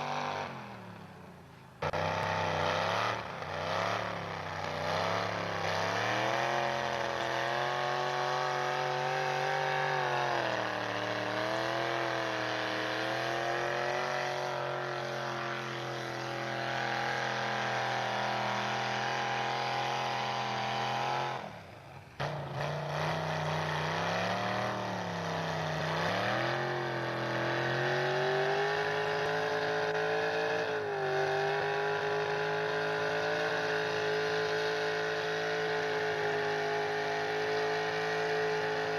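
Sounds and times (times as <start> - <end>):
truck engine running under load: 0.0 - 38.9.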